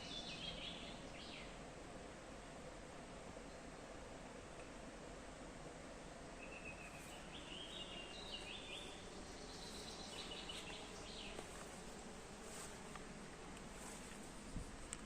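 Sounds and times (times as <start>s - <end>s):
faint bird chirping: 0.0s - 1.6s, 6.4s - 11.7s
steady background hiss: 0.0s - 15.0s.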